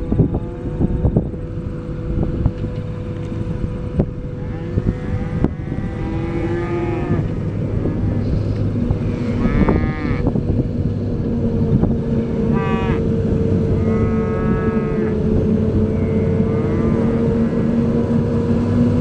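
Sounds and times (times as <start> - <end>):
rising and falling tonal calls: 0.0 - 10.4, 11.2 - 18.1
diesel machinery droning: 0.0 - 19.0.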